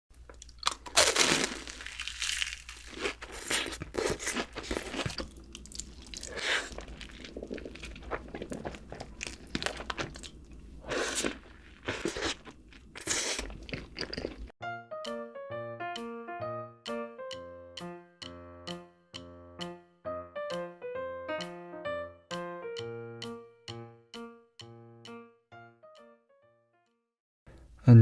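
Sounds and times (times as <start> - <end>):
person chewing crunchy food: 0.2 - 14.6.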